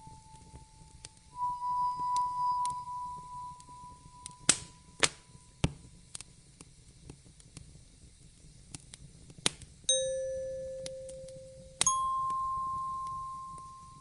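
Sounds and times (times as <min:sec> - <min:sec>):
soft chime note: 0:00.0 - 0:05.0, 0:09.9 - 0:14.0
soft low hiss: 0:00.0 - 0:14.0
wood fire crackling: 0:00.0 - 0:14.0.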